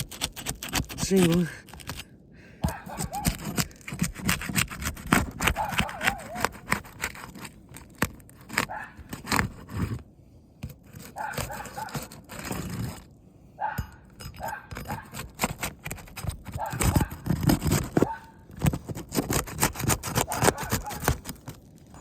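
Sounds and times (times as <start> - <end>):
bar scraping and ripping shingles: 2.9 - 10.0, 10.7 - 13.1, 14.1 - 22.0.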